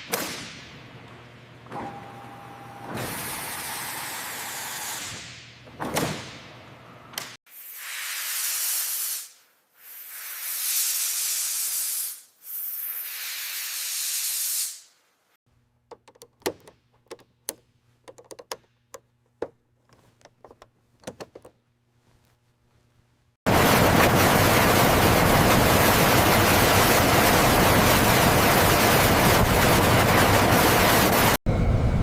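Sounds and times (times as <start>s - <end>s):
light clicks and taps: 15.9s - 22.4s.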